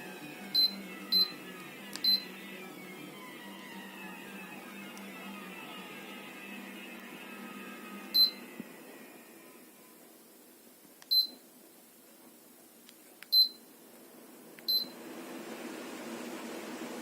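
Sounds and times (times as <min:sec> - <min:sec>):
fan whirring: 0:00.0 - 0:10.3, 0:14.0 - 0:17.0.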